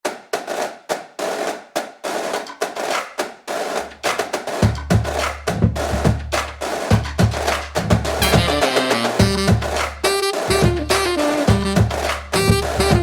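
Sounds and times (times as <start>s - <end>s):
drums and percussion music: 0.0s - 13.0s
deep bass: 8.2s - 9.8s, 10.5s - 13.0s.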